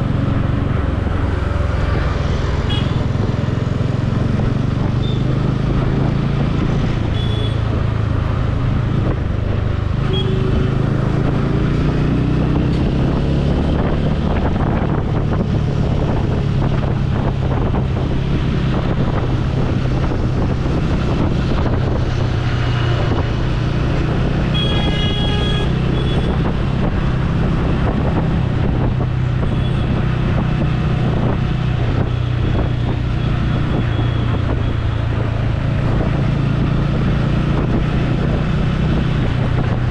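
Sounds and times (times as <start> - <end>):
traffic: 0.0 - 39.9
wind buffeting microphone: 0.0 - 39.9
vehicle horn: 2.7 - 3.0, 7.1 - 7.6, 10.0 - 10.7, 24.5 - 26.4.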